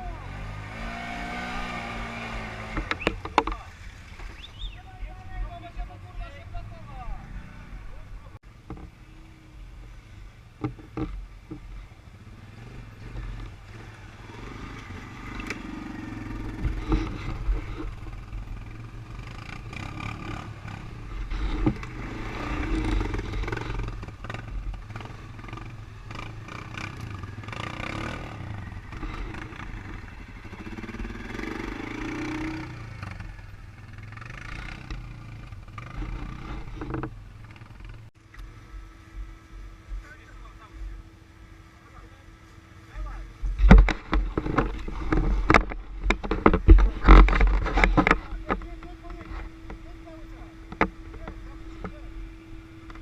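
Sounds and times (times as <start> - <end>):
atv engine revving: 0.0 - 53.0
knocks and rattles: 43.5 - 49.8.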